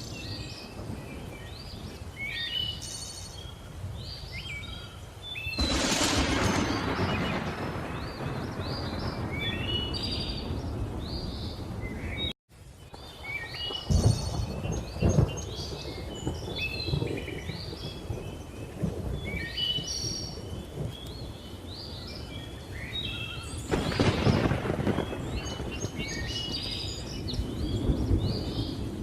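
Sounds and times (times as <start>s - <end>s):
rain: 0.0s - 29.0s
low thunder rumble: 5.6s - 12.3s, 12.9s - 22.2s, 23.6s - 29.0s
thunder booms: 5.6s - 12.3s, 13.8s - 21.0s, 23.7s - 29.0s
birds chirping and whistling: 6.5s - 12.3s, 13.0s - 28.9s.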